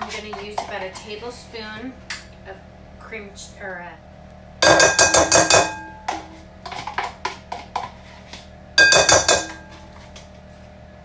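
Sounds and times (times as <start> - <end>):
utensils clinking against bowl: 4.6 - 7.0, 8.8 - 10.0.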